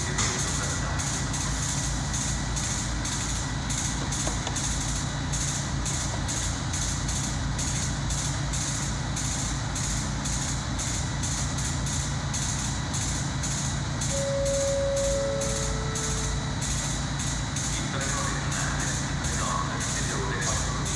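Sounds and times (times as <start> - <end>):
train low hum: 11.9 - 20.9
train horn held note: 14.1 - 16.8
high ticking: 14.1 - 17.3.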